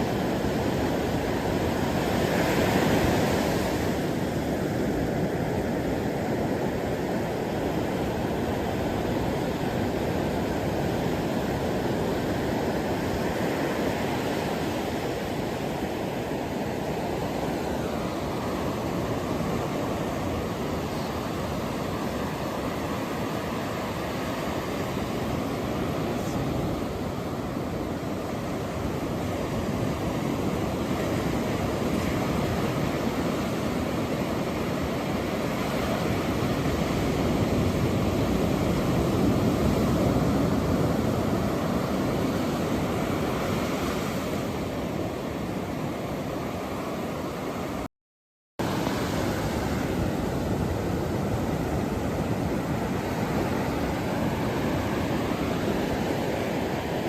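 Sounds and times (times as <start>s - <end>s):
ocean waves: 0.0s - 47.9s, 48.6s - 57.0s.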